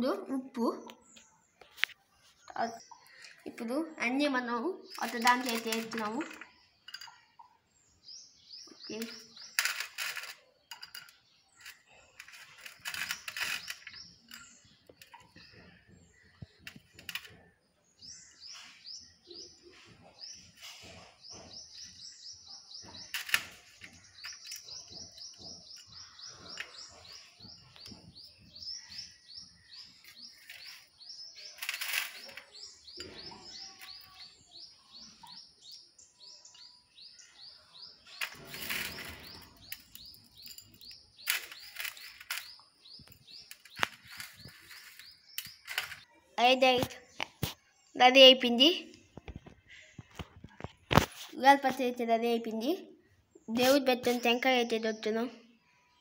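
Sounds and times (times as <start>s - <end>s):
bird chirping fast: 2.5s - 47.2s.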